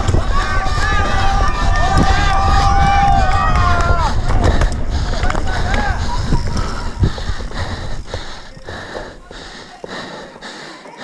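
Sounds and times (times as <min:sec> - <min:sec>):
rumble of bike riding: 0:00.0 - 0:10.6
person breathing hard: 0:04.1 - 0:11.0.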